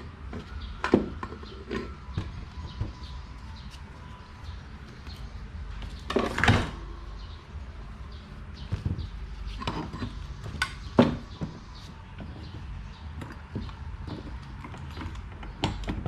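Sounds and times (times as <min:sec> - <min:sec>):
parts and tools clicking: 0:08.7 - 0:16.0.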